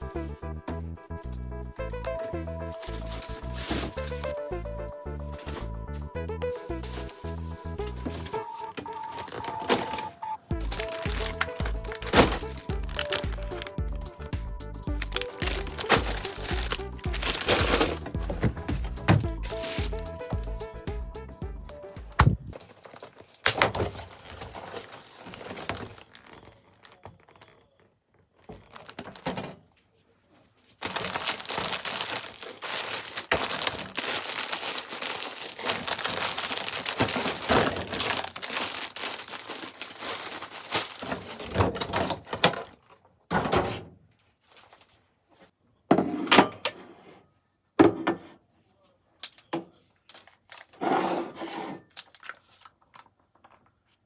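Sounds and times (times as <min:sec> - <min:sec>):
crinkling and rustling: 0:02.0 - 0:04.4, 0:05.2 - 0:20.9, 0:22.1 - 0:45.6, 0:49.2 - 0:54.0
knocks and thuds of handling: 0:15.5 - 0:19.8.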